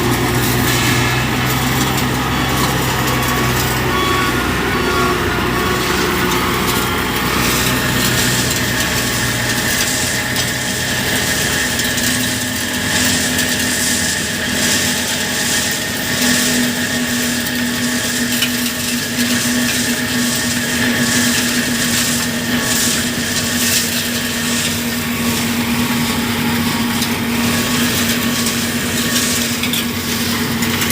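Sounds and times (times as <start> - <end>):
diesel machinery engine hum: 0.0 - 30.9
grinding crushing noise: 0.0 - 30.9
high steady tone: 0.3 - 9.4.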